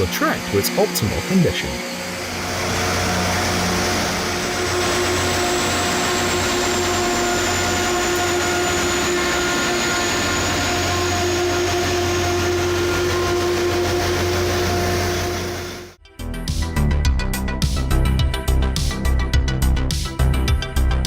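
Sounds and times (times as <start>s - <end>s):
faint high whine: 0.0s - 16.0s
steady hum: 0.0s - 16.0s.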